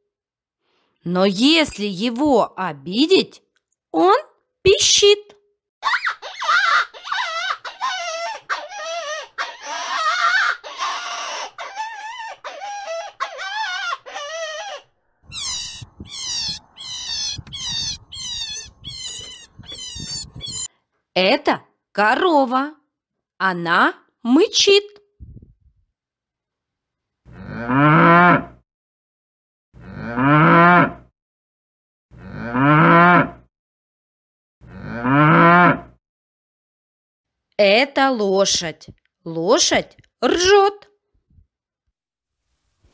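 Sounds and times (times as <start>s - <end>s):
rabbit squealing: 5.8s - 20.7s
cow mooing: 27.3s - 28.6s, 29.8s - 31.0s, 32.2s - 33.4s, 34.7s - 35.9s.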